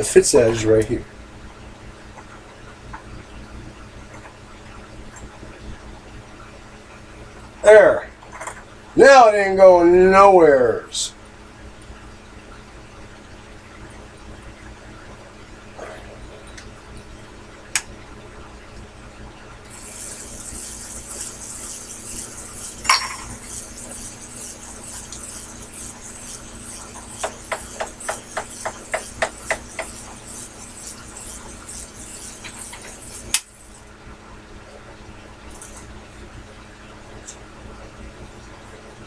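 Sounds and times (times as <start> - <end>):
lathe humming: 19.7 - 33.4.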